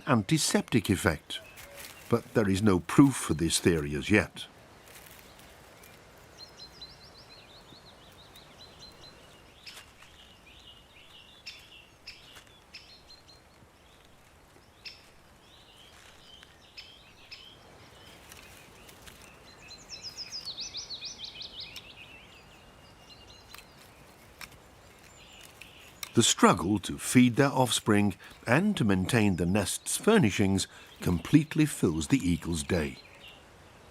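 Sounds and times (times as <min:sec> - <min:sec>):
songbirds chirping: 0:00.0 - 0:33.9
bird song phrase falling in pitch: 0:26.2 - 0:33.3.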